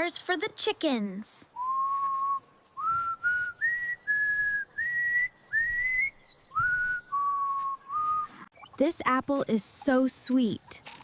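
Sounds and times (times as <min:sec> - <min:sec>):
person whistling a tune: 0:01.6 - 0:08.4.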